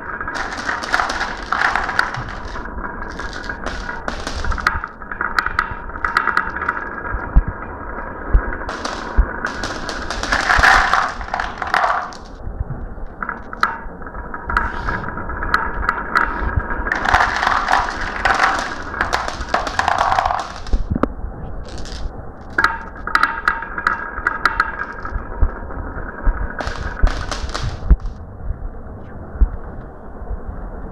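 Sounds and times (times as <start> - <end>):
marbles clattering: 0.0 - 7.2, 8.6 - 12.4, 15.6 - 20.9, 21.6 - 25.0, 26.6 - 28.1
marbles rolling down track: 0.0 - 7.5, 8.2 - 12.4, 15.3 - 20.9, 21.6 - 25.1, 26.6 - 28.1.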